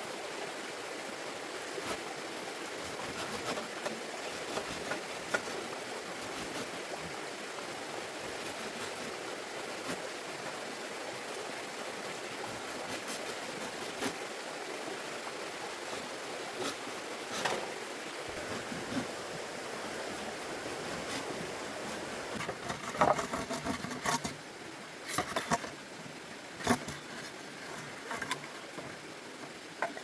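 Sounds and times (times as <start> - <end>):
running water rushing: 0.0 - 30.0.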